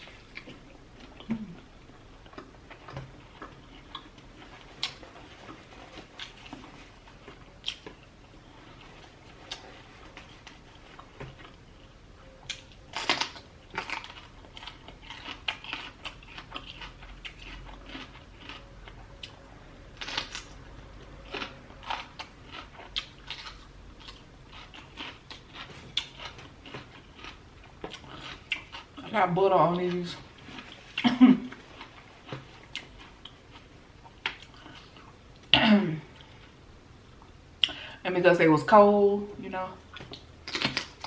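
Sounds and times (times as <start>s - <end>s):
person chewing and biting: 0.0s - 19.4s, 20.0s - 29.0s, 39.9s - 41.0s.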